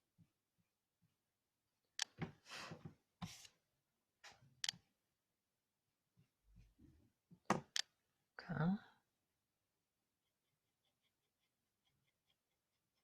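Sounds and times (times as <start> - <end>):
pencil scratching on paper: 10.1 - 13.0.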